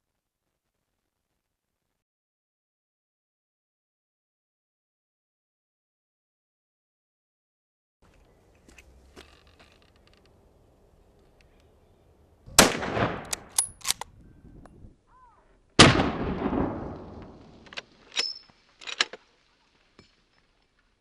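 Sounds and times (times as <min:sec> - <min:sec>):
rifle shots echoing: 0:12.5 - 0:14.0, 0:15.8 - 0:17.8
metallic clicks and clinks: 0:17.7 - 0:19.2.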